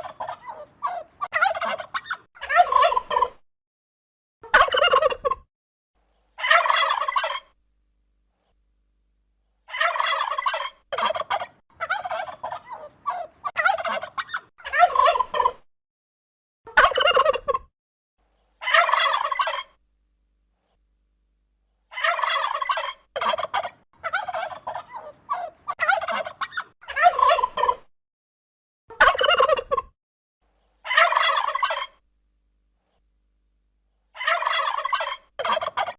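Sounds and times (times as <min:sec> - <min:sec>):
turkey gobbling: 0:00.0 - 0:03.4, 0:04.4 - 0:05.4, 0:06.4 - 0:07.6, 0:09.7 - 0:15.7, 0:16.7 - 0:17.7, 0:18.6 - 0:19.8, 0:21.9 - 0:27.9, 0:29.0 - 0:29.8, 0:30.8 - 0:32.0, 0:34.2 - 0:35.9.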